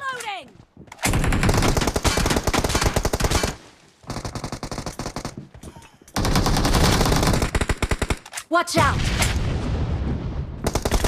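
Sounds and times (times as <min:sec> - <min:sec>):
video game automatic gunfire: 0:01.1 - 0:05.4, 0:06.2 - 0:08.2, 0:10.6 - 0:11.0.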